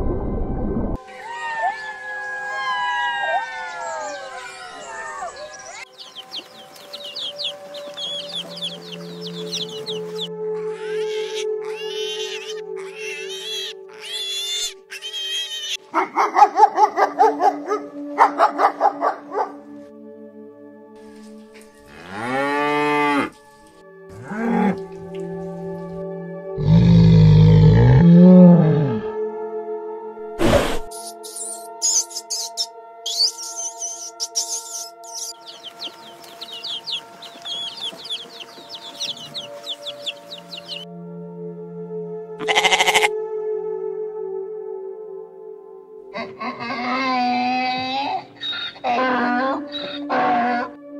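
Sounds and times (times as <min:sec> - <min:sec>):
background music: 0:00.0 - 0:50.9
high twittering chirps: 0:04.6 - 0:10.3, 0:30.9 - 0:40.8
chicks peeping: 0:04.8 - 0:10.3, 0:31.9 - 0:40.8
hedgehog squeaking: 0:05.8 - 0:15.8, 0:31.3 - 0:40.8
dog barking: 0:15.9 - 0:19.6.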